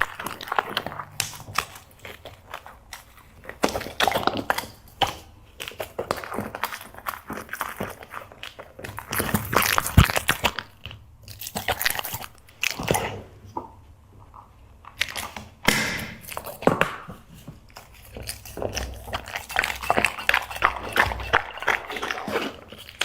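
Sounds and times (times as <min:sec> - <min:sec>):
dog crunching treats: 0:00.0 - 0:13.3, 0:16.2 - 0:23.0.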